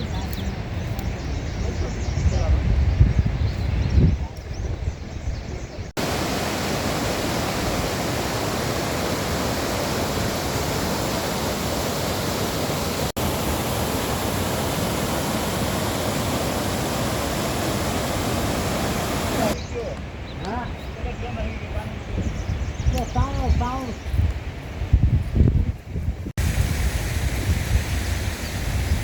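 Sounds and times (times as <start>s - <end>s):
mountain stream rushing: 6.0s - 19.6s.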